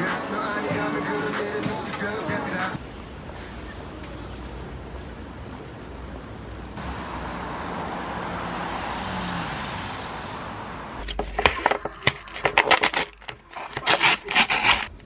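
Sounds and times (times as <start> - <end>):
road vehicle passing: 0.0 - 11.8
sharp clicks and scraping: 11.0 - 15.0.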